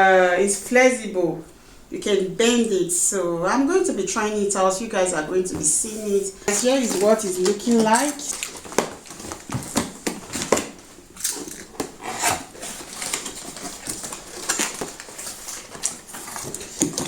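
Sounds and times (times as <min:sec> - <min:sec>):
cardboard packaging rustling: 0:04.9 - 0:17.0.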